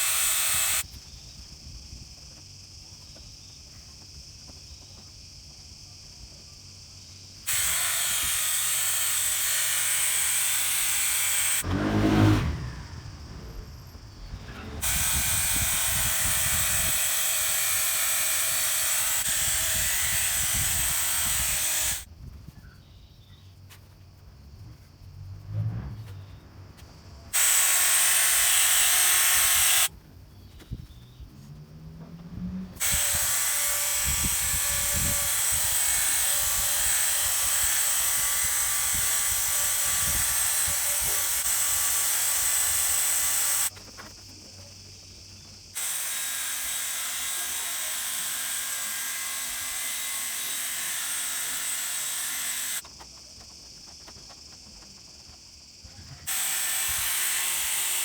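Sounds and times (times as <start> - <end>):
small electric motor whirring: 0.0 - 0.8, 7.5 - 22.1, 27.3 - 29.9, 32.3 - 43.8, 45.8 - 52.8, 56.3 - 58.0.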